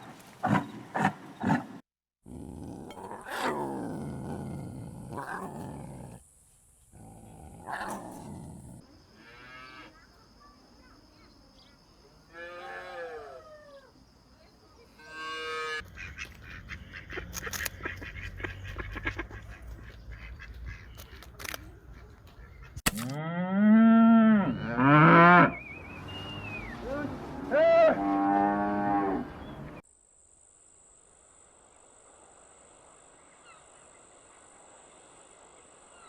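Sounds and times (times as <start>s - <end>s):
cow mooing: 23.2s - 25.6s, 26.3s - 29.4s.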